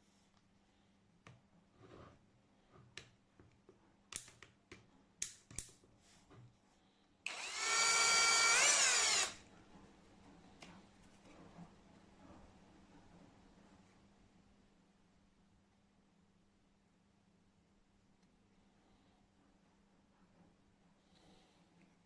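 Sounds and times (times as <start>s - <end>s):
cordless drill motor whining: 7.3s - 9.4s.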